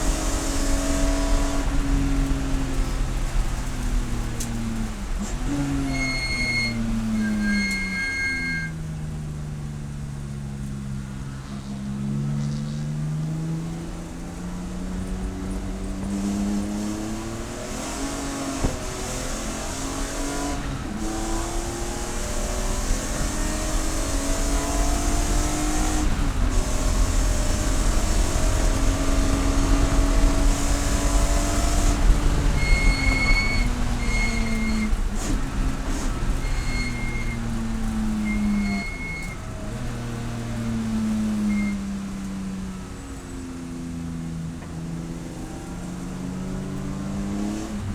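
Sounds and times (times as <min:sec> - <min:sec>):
race car engine: 0:00.0 - 0:47.9
tyre and road noise: 0:00.0 - 0:47.9
short electronic beeps: 0:05.9 - 0:08.8, 0:32.6 - 0:34.9.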